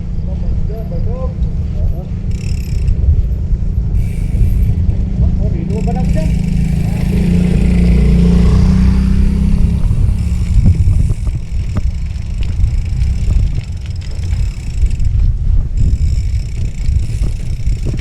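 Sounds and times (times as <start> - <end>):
vehicle engine humming: 0.0 - 18.0
wind rumbling on microphone: 0.0 - 18.0
scattered knocks: 5.7 - 18.0.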